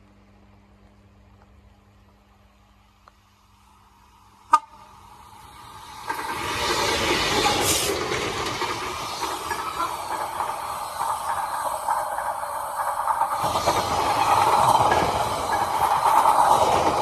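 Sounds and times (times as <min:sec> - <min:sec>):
freight train passing on rails: 0:01.3 - 0:17.0
brief hiss: 0:06.7 - 0:08.4.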